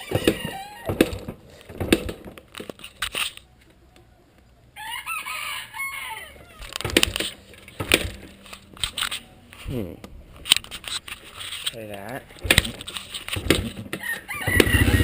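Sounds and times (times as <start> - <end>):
rooster crowing: 0.0 - 1.0, 4.8 - 6.7, 14.0 - 15.0
sharp knocks and clatters: 0.0 - 3.3, 6.7 - 9.2, 10.4 - 14.0.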